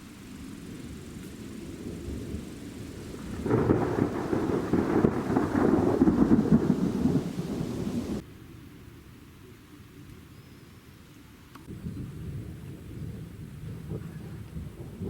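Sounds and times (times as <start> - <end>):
rain hissing: 0.0 - 15.0
thunder rumbling: 0.6 - 8.2, 11.7 - 15.0.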